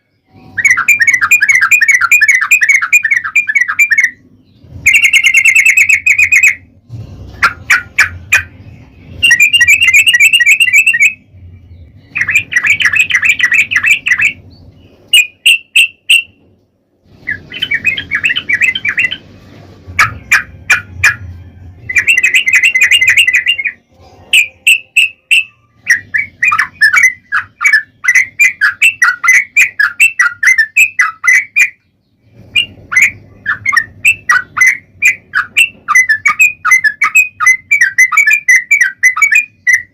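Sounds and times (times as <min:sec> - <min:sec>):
bulbul chattering song: 0:00.0 - 0:16.4, 0:17.1 - 0:39.9
low hum: 0:04.1 - 0:29.2.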